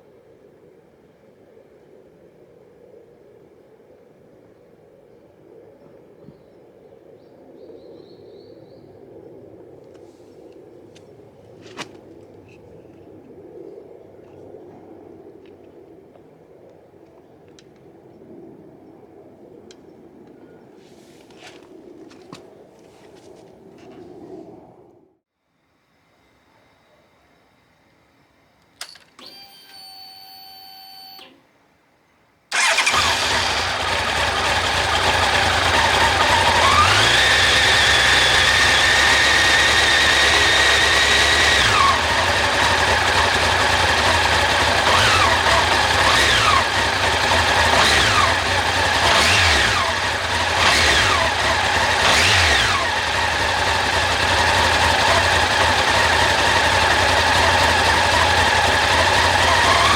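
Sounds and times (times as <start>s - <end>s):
short electronic beep: 29.3s - 31.4s
motorcycle engine revving: 32.5s - 59.9s.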